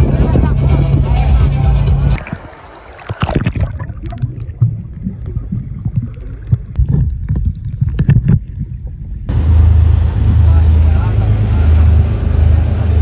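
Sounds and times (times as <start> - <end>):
boat rumble: 0.0 - 6.3, 9.3 - 13.0
low thumps on a boat: 9.3 - 13.0.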